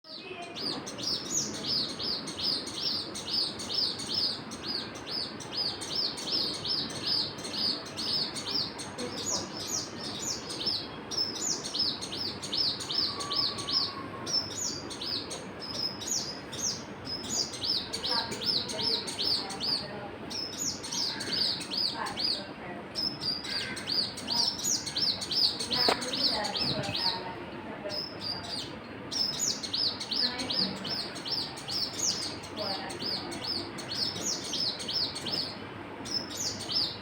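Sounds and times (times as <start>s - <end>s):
birds chirping: 0.1s - 37.0s
low background hiss: 0.1s - 37.0s.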